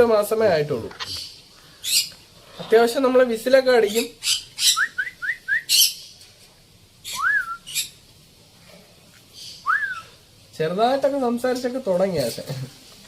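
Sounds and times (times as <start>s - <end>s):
parrot whistling: 4.2s - 6.0s, 7.0s - 8.0s, 9.4s - 10.2s.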